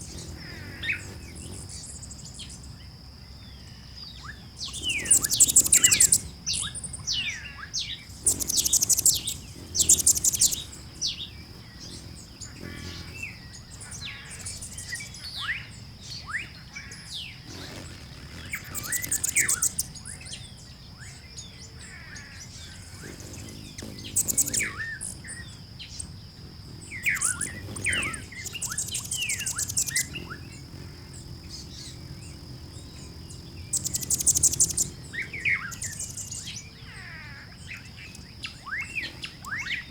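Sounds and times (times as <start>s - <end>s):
birds chirping: 0.0s - 39.9s
high buzzy bird trill: 4.7s - 20.2s, 22.0s - 39.9s.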